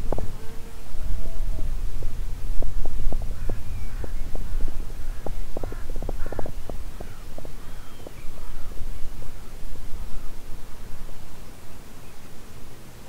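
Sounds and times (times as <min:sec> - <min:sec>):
birds calling in chorus: 0:03.1 - 0:10.4.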